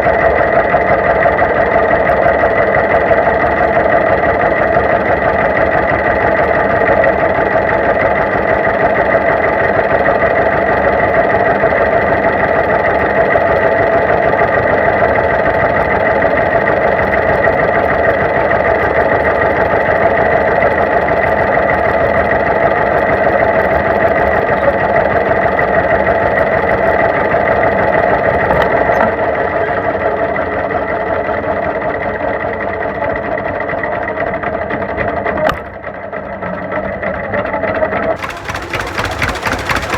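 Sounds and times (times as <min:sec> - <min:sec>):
tractor engine running: 0:38.2 - 0:39.9.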